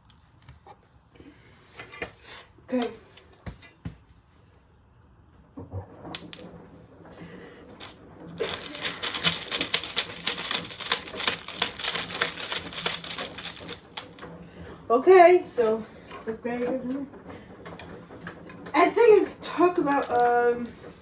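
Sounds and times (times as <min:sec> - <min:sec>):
washing machine motor hum: 0:00.0 - 0:21.0
loose object clattering in drum: 0:05.6 - 0:21.0.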